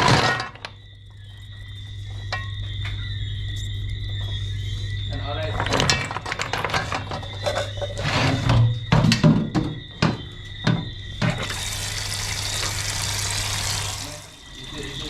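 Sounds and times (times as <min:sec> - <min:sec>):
water running: 0:11.3 - 0:15.0.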